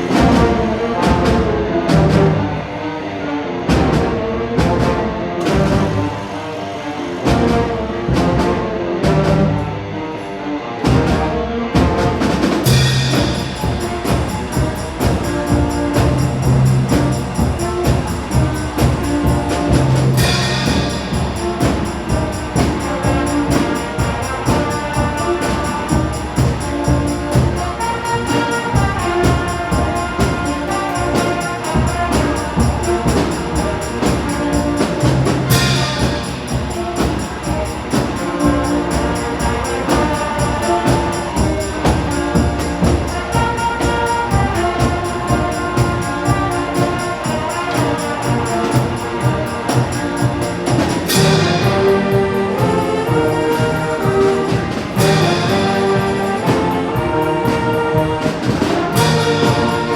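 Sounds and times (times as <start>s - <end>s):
concert band playing rock: 10.8s - 59.9s
cymbal crash: 12.4s - 57.3s.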